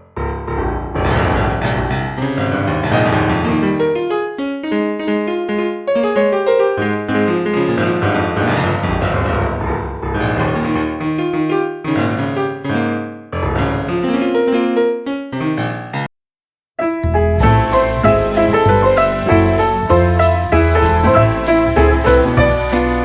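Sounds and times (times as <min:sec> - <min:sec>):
piano music: 0:00.0 - 0:16.1, 0:16.8 - 0:23.0
low bass: 0:17.0 - 0:23.0.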